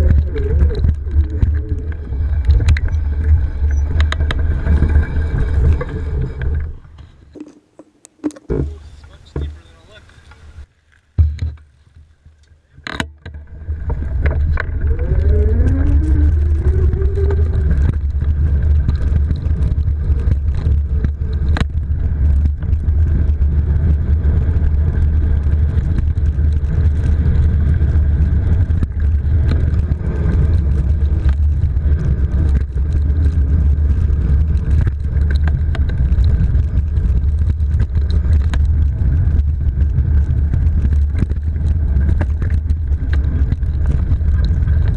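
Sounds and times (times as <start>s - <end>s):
tires on dirt trail: 0.0s - 44.9s
wind rumble on microphone: 0.0s - 44.9s
clicks: 7.4s - 8.6s.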